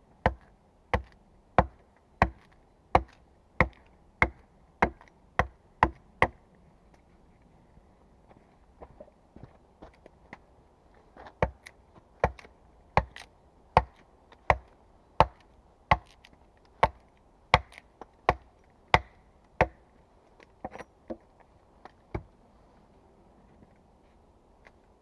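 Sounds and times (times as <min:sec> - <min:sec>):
axe chopping wood: 0:00.2 - 0:06.4, 0:11.4 - 0:19.8.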